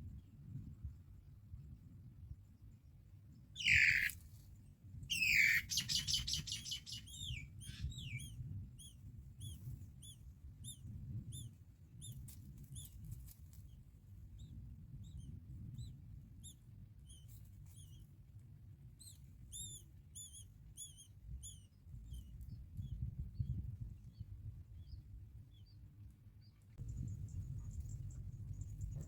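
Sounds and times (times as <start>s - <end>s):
bird rattling call: 3.6s - 4.1s
birds calling harshly: 3.6s - 4.1s, 5.1s - 8.3s
low steady rumble: 26.8s - 29.0s.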